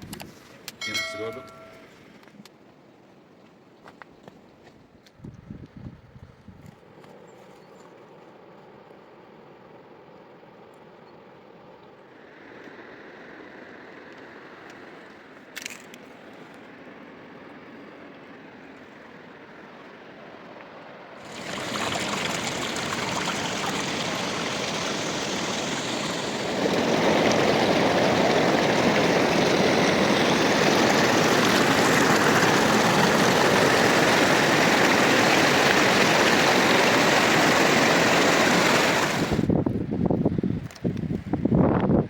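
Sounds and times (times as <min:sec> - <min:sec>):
river water rushing: 0:21.2 - 0:39.5.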